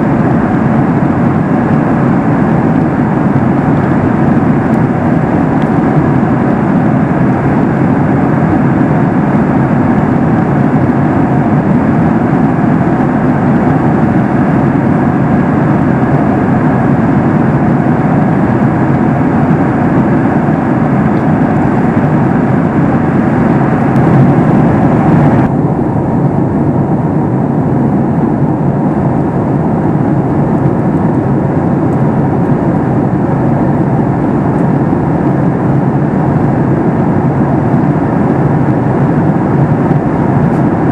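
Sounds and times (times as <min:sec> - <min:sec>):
aircraft cabin engine noise: 0:00.0 - 0:40.9.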